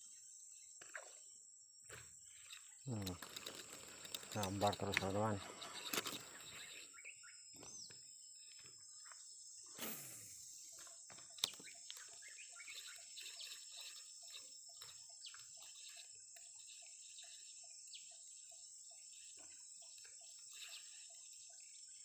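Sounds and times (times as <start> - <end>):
faint bird chirps: 0.0 - 22.0
short evenly spaced calls: 2.3 - 7.4, 10.3 - 22.0.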